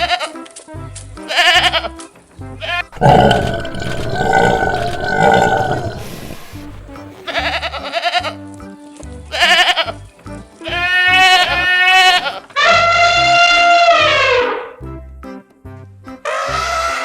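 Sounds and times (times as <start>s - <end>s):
long low animal call: 3.0s - 6.9s.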